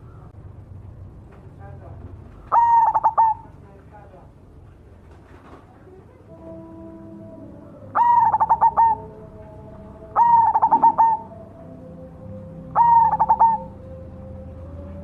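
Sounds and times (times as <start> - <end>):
dove cooing: 2.4 - 3.5, 7.6 - 15.0.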